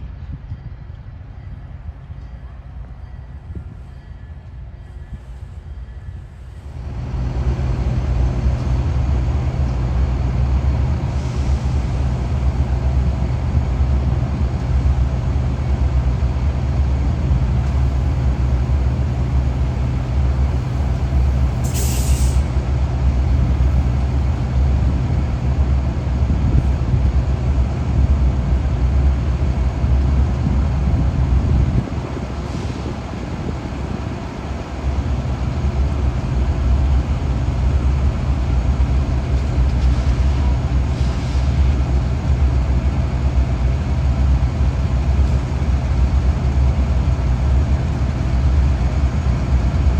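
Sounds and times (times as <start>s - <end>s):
locomotive engine drone: 0.0s - 49.9s
air hiss burst: 21.6s - 22.5s.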